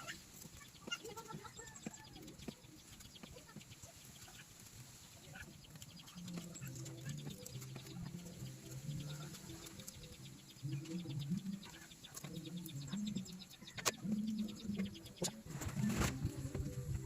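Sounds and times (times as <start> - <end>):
pigeons cooing: 5.2 - 17.0.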